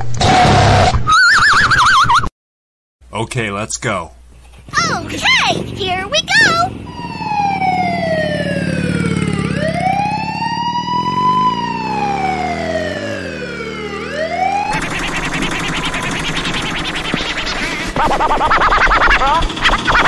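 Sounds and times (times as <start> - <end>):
wailing siren: 6.3 - 17.8
fast scratchy rattle: 14.7 - 20.0.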